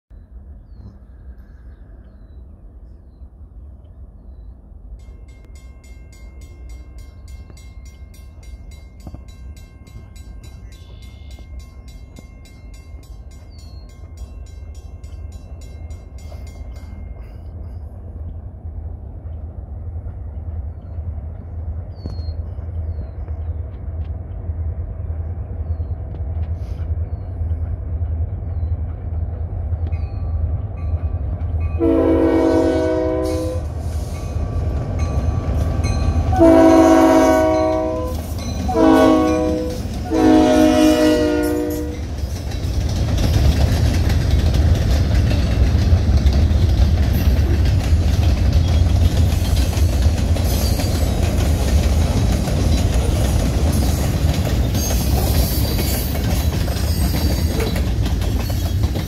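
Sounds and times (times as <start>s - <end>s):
diesel locomotive engine rumble: 0.1s - 59.0s
train wheels clicking over rail joints: 5.0s - 31.8s, 32.6s - 59.0s
train horn blasts: 31.8s - 33.8s, 36.1s - 42.1s.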